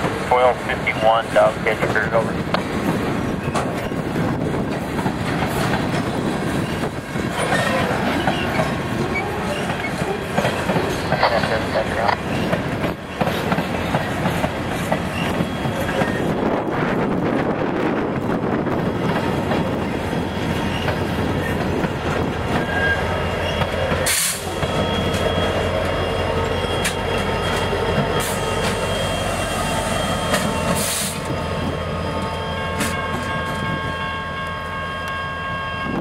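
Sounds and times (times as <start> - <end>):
diesel locomotive rumble: 0.0 - 36.0
wheels clattering on rail: 1.7 - 28.9.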